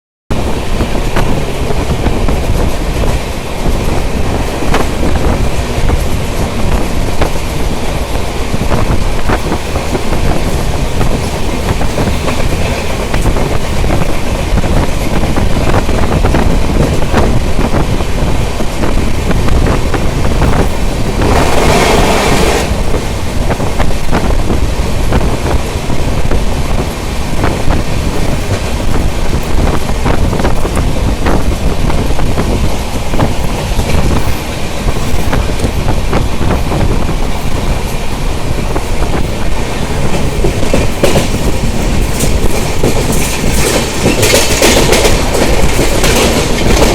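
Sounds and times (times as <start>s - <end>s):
rush of noise: 0.3s - 46.9s
train rumbling: 0.3s - 46.9s
wheels clicking over rail joints: 23.7s - 46.9s.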